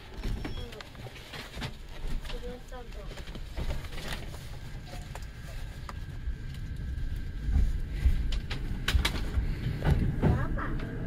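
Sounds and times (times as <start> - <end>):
train wheels rumbling on rail: 5.4 - 11.0.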